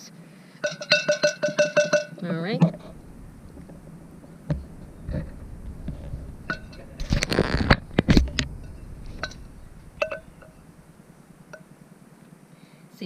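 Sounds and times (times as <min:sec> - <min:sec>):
dishes and utensils clinking: 0:00.6 - 0:03.0, 0:06.3 - 0:10.6
scraping and rustling: 0:02.6 - 0:11.6.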